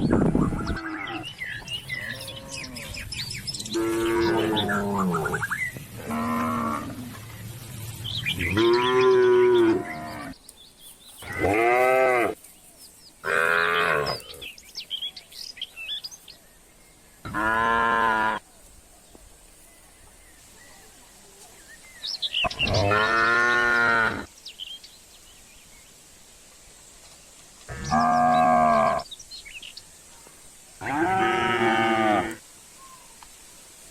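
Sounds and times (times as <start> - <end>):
birds chirping faintly: 0.0 - 33.9
cattle mooing: 3.7 - 5.4, 30.8 - 32.4.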